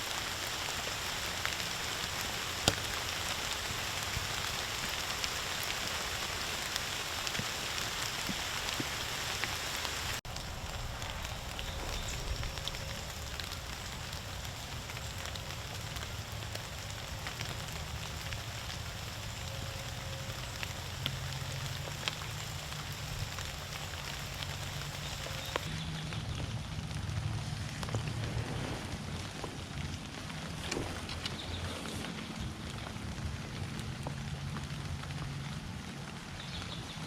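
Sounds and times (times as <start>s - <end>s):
rain falling: 0.0s - 37.0s
low rumble: 10.2s - 16.6s.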